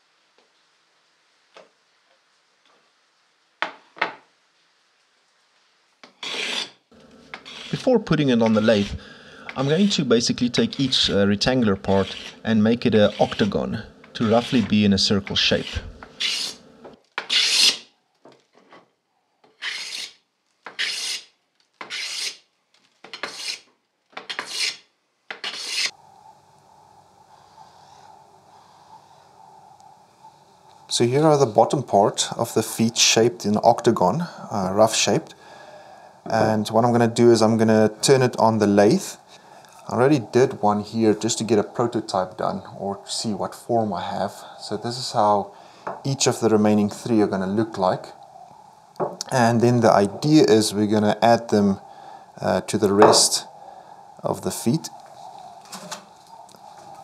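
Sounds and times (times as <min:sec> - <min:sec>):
faint steady hum: 0:00.0 - 0:18.2, 0:25.9 - 0:57.0
hand tool shaving wood: 0:06.2 - 0:06.7, 0:07.3 - 0:16.6
wooden pieces knocking: 0:53.0 - 0:53.4.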